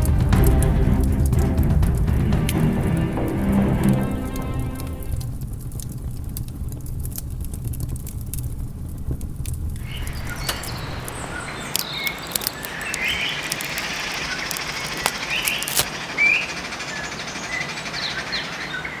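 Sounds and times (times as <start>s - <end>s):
steady background hiss: 0.0s - 19.0s
sharp clicks: 5.2s - 15.9s
bird chirps: 9.8s - 19.0s.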